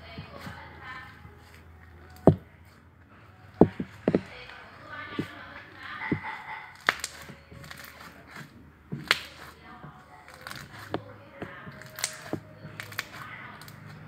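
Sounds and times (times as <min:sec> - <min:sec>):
slime popping and clicking: 0:06.8 - 0:08.0, 0:11.7 - 0:13.8.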